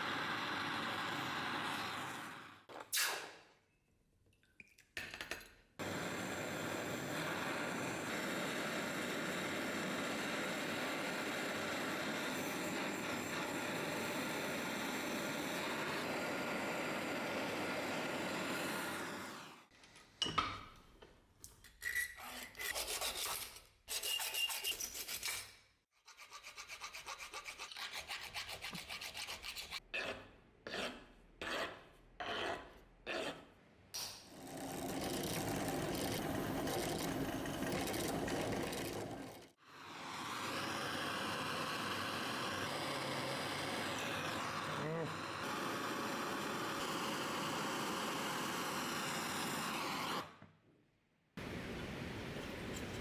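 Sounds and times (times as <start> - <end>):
hand file scraping workpiece: 21.8 - 33.5.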